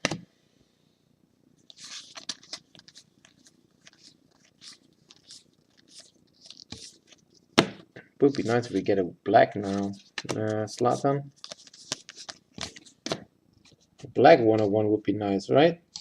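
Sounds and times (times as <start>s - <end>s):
cards scraping and rustling: 1.6s - 7.5s, 8.2s - 9.0s, 9.6s - 14.7s.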